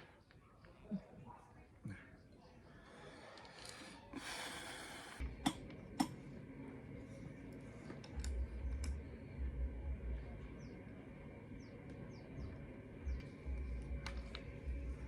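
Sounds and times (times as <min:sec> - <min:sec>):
breathy hiss: 0:03.2 - 0:05.2.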